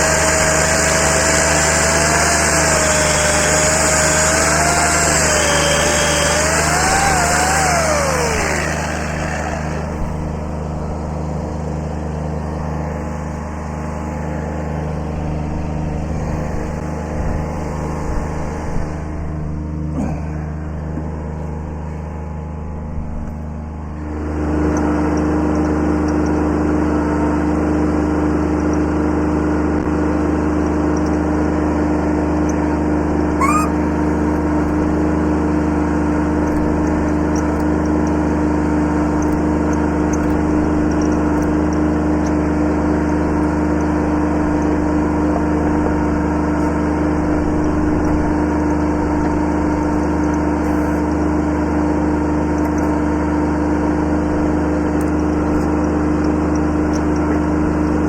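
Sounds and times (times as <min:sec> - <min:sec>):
tractor diesel engine running: 0:00.0 - 0:19.7
brief rising squeak: 0:33.4 - 0:34.1.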